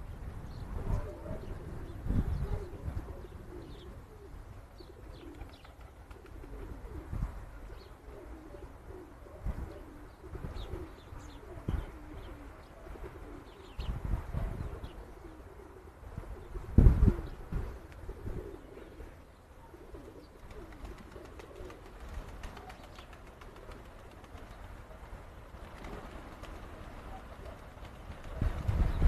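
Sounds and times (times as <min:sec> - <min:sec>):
pigeons cooing: 0:00.0 - 0:29.0
small birds chirping: 0:18.5 - 0:24.9.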